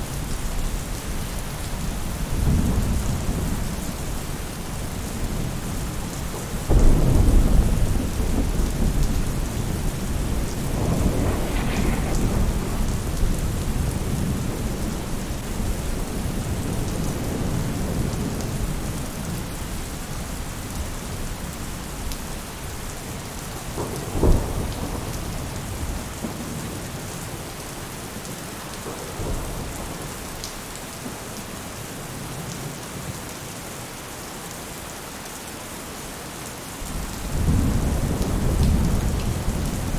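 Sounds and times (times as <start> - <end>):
rain on a roof: 0.0 - 39.9
thunder rumbling: 1.7 - 19.6, 23.6 - 27.6, 36.8 - 39.9
thunder clap: 6.6 - 18.6.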